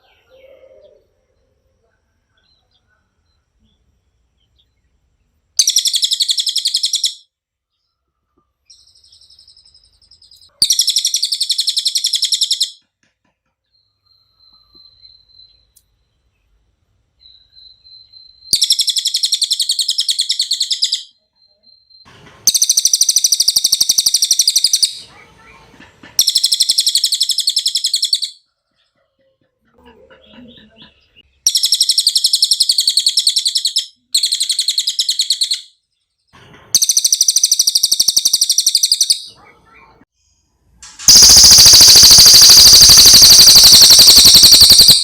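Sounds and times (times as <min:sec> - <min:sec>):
parrot trilling: 0:41.1 - 0:45.0.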